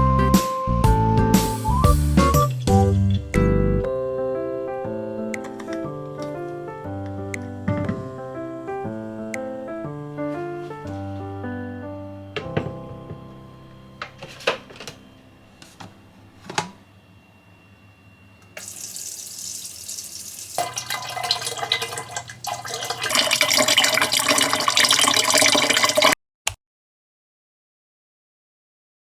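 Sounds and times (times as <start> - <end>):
water running: 18.5 - 26.2.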